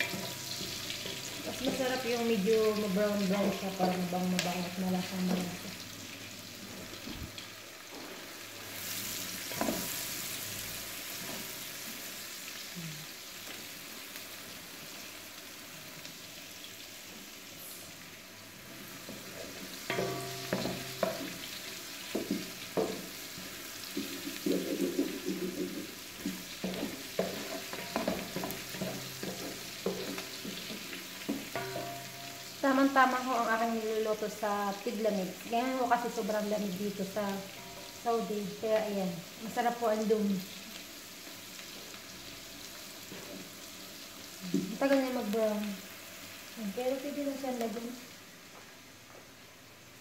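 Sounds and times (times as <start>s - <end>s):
spatula scraping and knocking pot: 0.0s - 2.0s, 19.1s - 23.2s, 23.9s - 32.6s
onion sizzling in butter: 0.0s - 50.0s.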